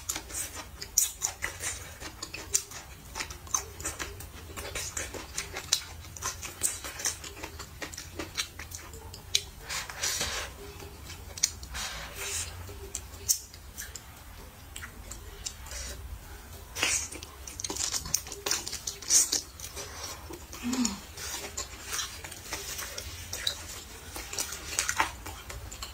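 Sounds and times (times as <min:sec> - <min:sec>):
chewing and lip-smacking: 0:00.0 - 0:25.9.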